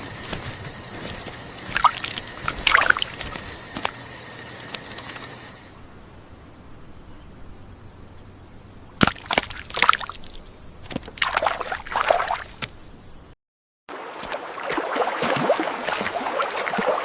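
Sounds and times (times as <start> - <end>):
water splashing: 0.0 - 5.7, 9.0 - 12.7, 13.9 - 17.0.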